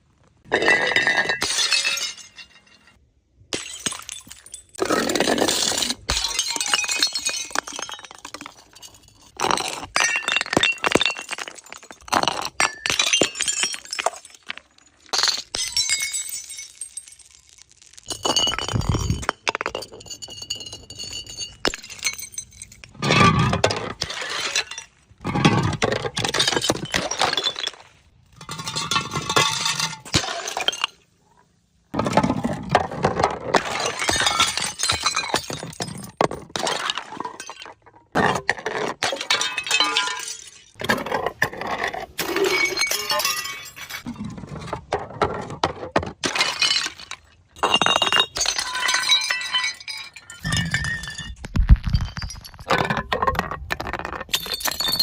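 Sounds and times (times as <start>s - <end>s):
glass bottles shattering: 0.5s - 31.1s, 31.9s - 44.2s, 46.0s - 55.0s
broken glass tinkling: 47.6s - 52.7s.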